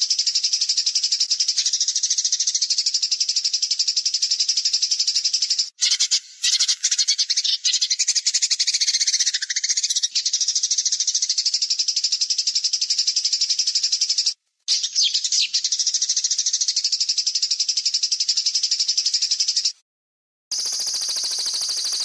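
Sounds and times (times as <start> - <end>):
songbird harsh rattling trill: 0.0 - 19.7, 20.5 - 22.0
high pulsing bird trill: 20.5 - 22.0.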